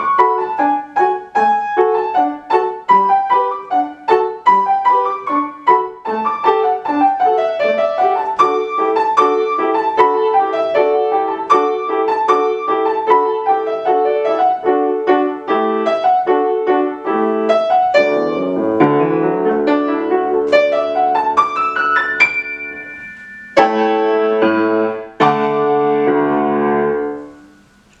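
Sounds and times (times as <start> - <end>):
solo piano dance piece: 0.0 - 28.0.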